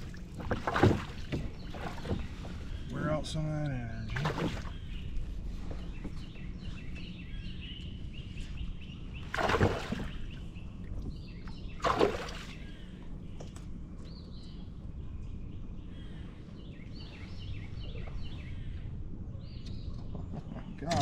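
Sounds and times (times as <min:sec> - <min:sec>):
water splashing: 0:00.0 - 0:02.6, 0:04.1 - 0:04.8, 0:09.3 - 0:10.4, 0:11.7 - 0:12.6
small birds chirping: 0:00.0 - 0:21.0.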